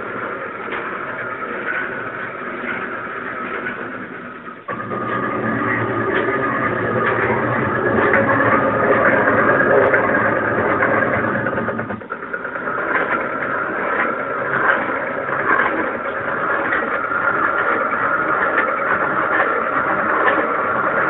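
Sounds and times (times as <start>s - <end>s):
high noisy machine sound: 0.0s - 21.0s
low machine hum: 0.0s - 21.0s.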